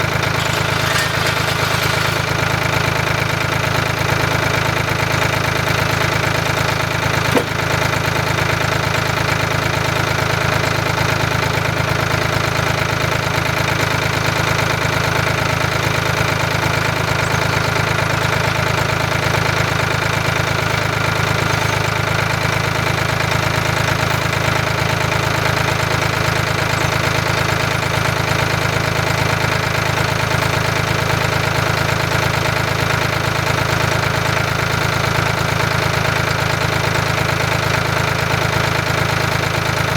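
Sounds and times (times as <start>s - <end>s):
brief knock: 7.3s - 7.6s.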